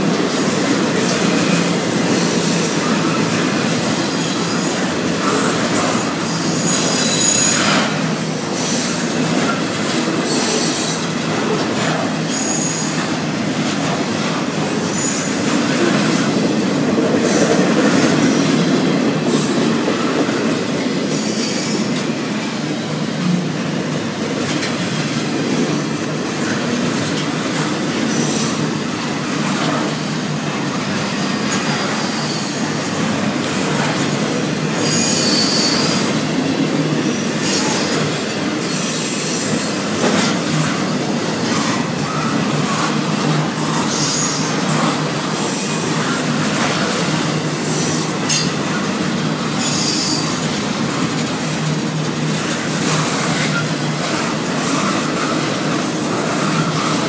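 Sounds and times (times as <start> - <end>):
train wheels rumbling on rail: 0.0 - 57.0
high-pitched wheel squeals: 5.8 - 8.0, 31.1 - 33.1, 34.0 - 36.1, 49.5 - 50.4.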